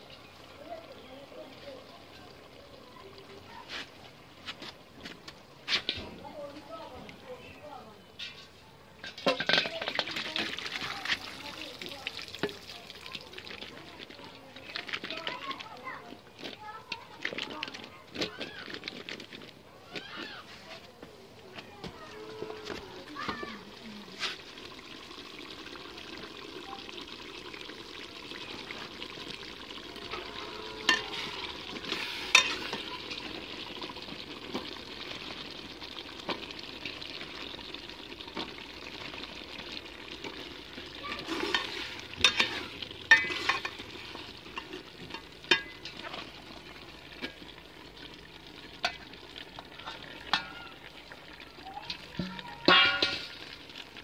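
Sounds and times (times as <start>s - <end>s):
vegetables sizzling in hot oil: 9.0s - 16.0s, 22.0s - 54.0s
metal spatula clinking on pot: 30.9s - 31.3s, 32.3s - 32.8s, 41.4s - 43.8s, 44.5s - 46.0s, 52.2s - 53.4s.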